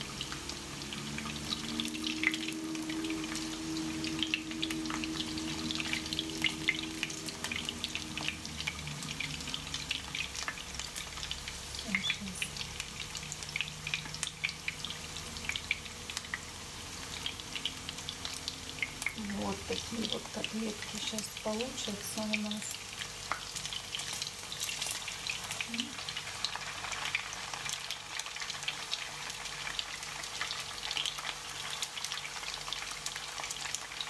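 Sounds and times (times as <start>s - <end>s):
patties frying in oil: 0.0s - 34.0s
low hum: 0.1s - 10.5s.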